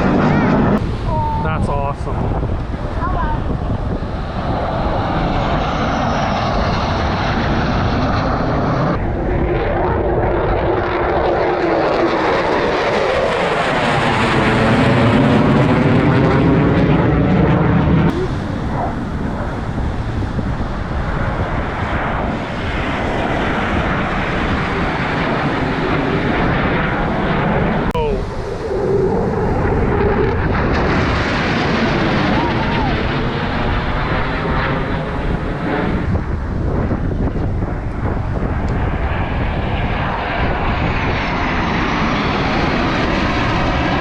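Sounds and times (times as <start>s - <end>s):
airplanes flying past: 0.0s - 44.0s.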